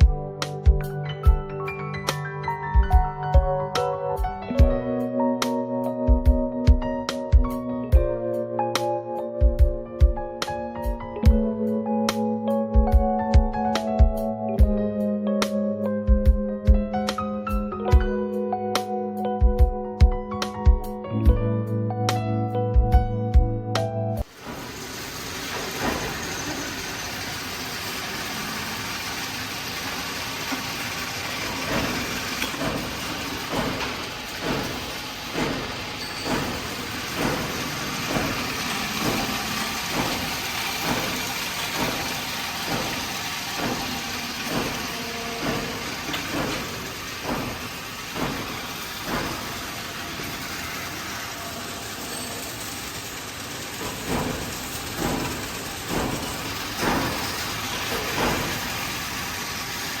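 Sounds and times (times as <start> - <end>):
workshop machinery running: 24.2 - 60.0.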